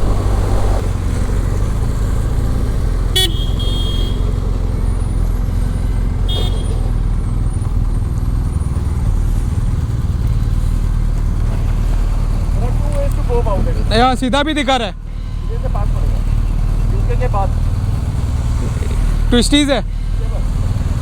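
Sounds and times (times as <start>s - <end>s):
motorcycle engines idling: 0.0s - 21.0s
horn beeping: 2.2s - 8.9s, 14.7s - 18.4s.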